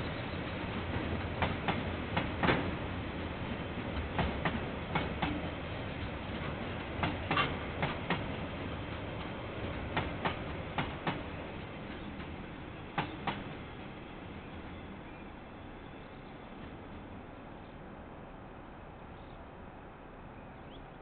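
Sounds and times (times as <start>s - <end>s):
low rumble of train wagons: 0.0s - 21.0s
wheels clacking over rail joint: 6.3s - 8.4s.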